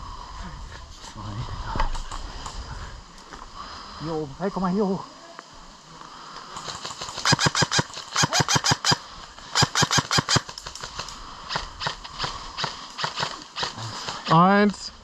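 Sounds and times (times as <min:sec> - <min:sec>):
airsoft gun firing: 0:06.6 - 0:09.0, 0:09.6 - 0:13.8.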